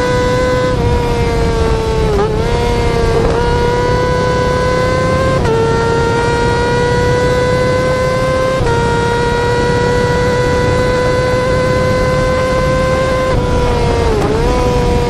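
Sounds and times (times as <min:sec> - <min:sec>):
wind and road rush: 0:00.0 - 0:15.0.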